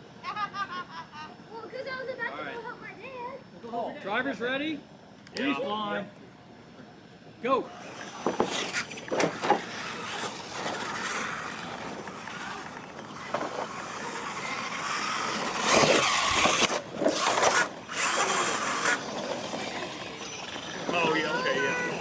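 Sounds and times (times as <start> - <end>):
rc truck motors whining: 7.6 - 22.0.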